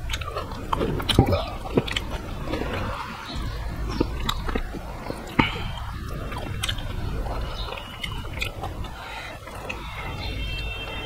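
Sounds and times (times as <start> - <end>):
wet mouth clicks and smacks: 0.0 - 10.3
close chewing of food: 0.0 - 11.0.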